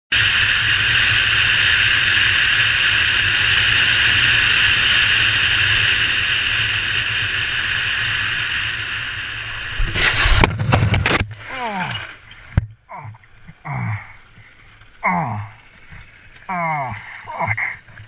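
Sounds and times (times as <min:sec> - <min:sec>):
low drone: 0:08.0 - 0:18.0
wind rushing past helmet: 0:09.4 - 0:12.6
motorcycle crash: 0:09.8 - 0:12.7.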